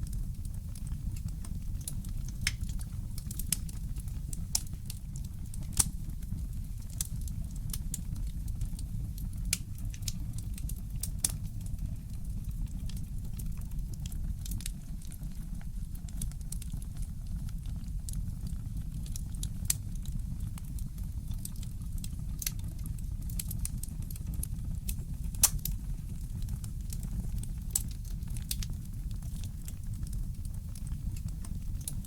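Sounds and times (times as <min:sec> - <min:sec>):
steady low rumble: 0:00.0 - 0:07.5, 0:25.1 - 0:32.0
wood fire crackling and popping: 0:00.0 - 0:32.0.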